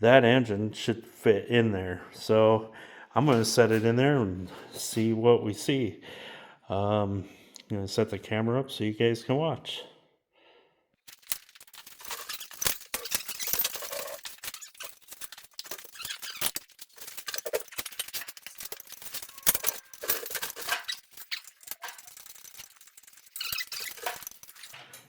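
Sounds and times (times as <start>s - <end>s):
squeaks and metallic rattles: 11.1s - 25.0s.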